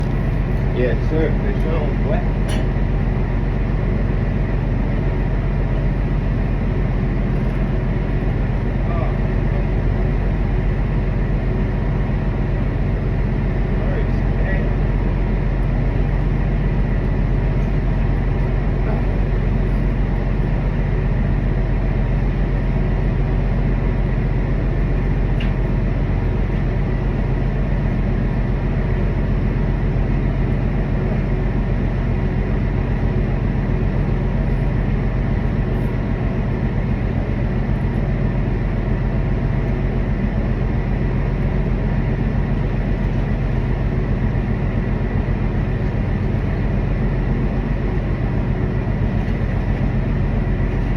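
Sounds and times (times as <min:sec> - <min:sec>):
engines droning: 0:00.0 - 0:20.7.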